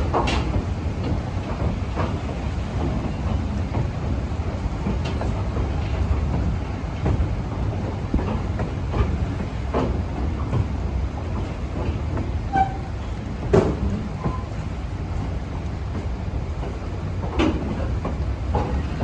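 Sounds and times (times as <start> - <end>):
wheels knocking on track: 0.0 - 14.7
train rumbling on rails: 0.0 - 19.0.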